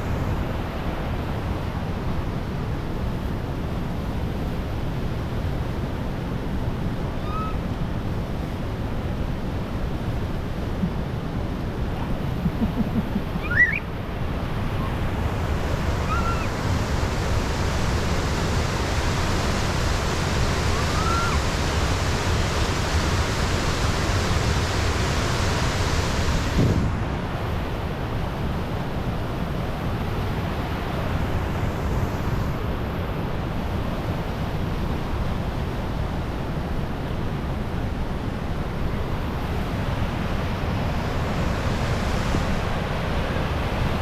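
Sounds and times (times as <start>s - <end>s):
faint short calls: 7.2s - 7.6s, 12.0s - 13.9s, 16.0s - 16.5s.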